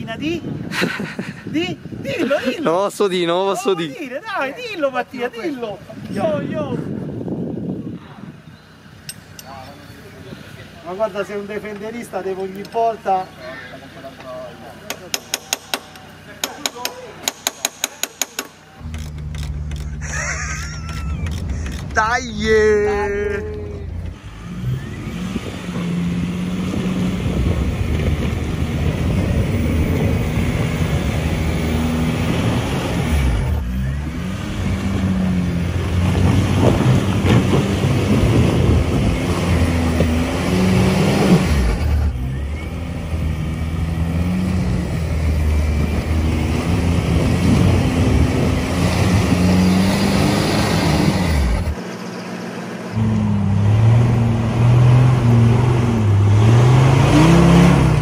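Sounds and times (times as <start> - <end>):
off-road vehicle engine revving: 18.6 - 58.0.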